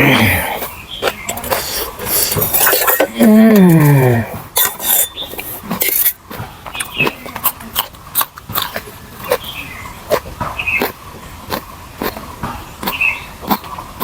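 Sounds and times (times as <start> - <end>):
short falling vocal sound: 0.0 - 0.6
wet chewing: 0.0 - 14.0
utensil clinking on plate: 1.3 - 4.0, 4.6 - 6.2.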